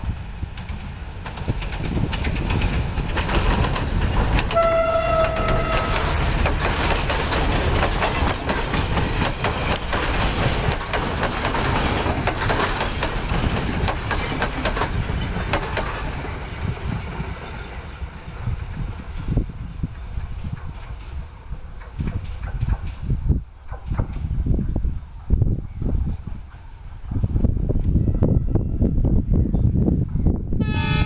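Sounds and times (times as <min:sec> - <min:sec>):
diesel locomotive engine rumble: 0:00.0 - 0:31.0
wheels clicking over rail joints: 0:00.5 - 0:24.4
train horn blast: 0:04.5 - 0:06.3, 0:27.9 - 0:29.0, 0:30.6 - 0:31.0.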